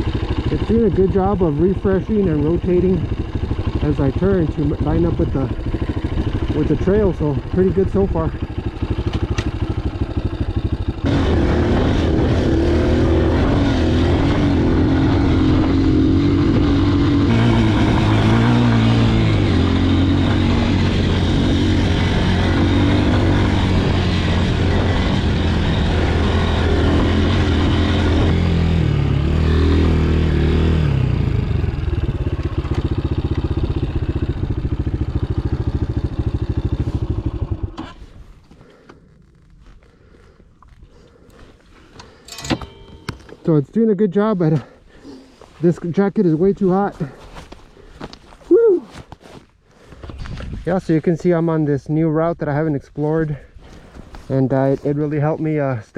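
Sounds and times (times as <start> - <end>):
dirt bike engine revving: 0.0 - 38.8.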